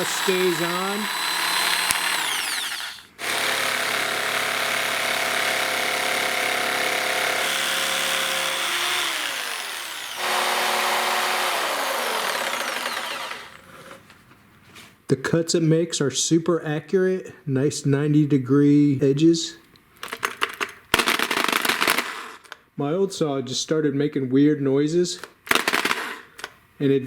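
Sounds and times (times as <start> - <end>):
electric jigsaw running: 0.0 - 14.0, 21.1 - 22.4.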